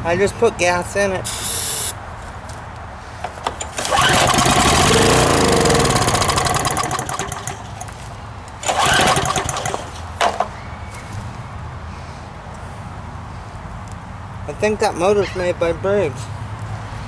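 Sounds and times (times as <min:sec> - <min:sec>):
small engine starting and dying: 0:01.3 - 0:02.0, 0:03.3 - 0:10.6.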